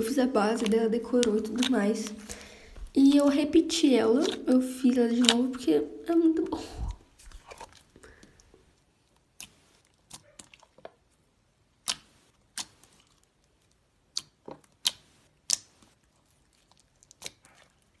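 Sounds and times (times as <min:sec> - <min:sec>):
slime clicking and popping: 0:00.5 - 0:02.4, 0:04.1 - 0:05.6, 0:11.8 - 0:13.0, 0:14.0 - 0:15.8.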